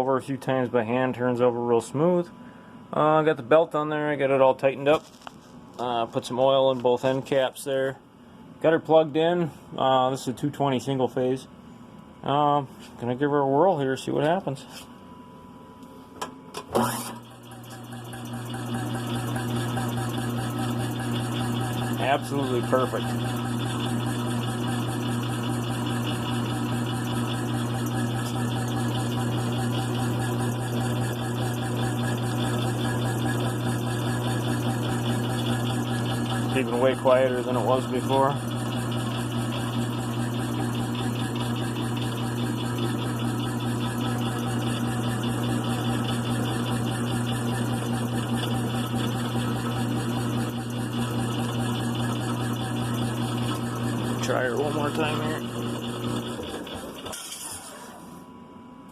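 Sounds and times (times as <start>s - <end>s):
air compressor humming: 15.8s - 58.3s.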